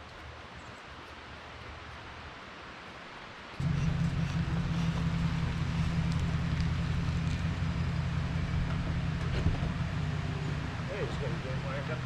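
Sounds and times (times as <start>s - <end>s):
engine idling: 3.6s - 12.0s.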